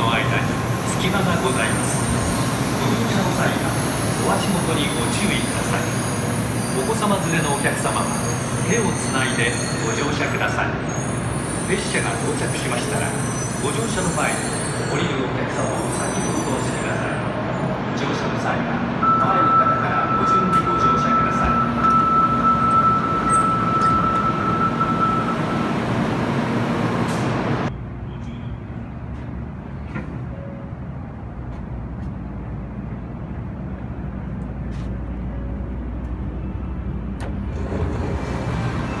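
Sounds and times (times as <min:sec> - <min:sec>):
low train rumble: 0:00.0 - 0:39.0
hum inside train car: 0:16.8 - 0:39.0.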